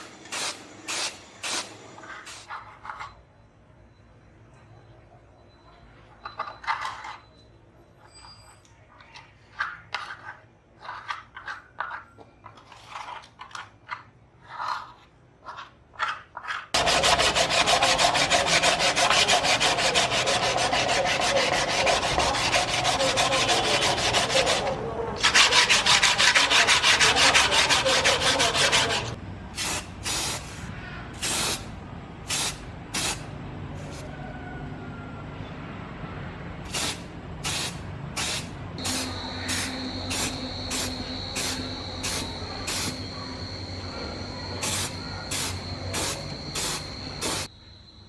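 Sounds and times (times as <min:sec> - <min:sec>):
rough sanding rubbing: 0:16.8 - 0:29.2
sanding scraping: 0:16.8 - 0:29.2.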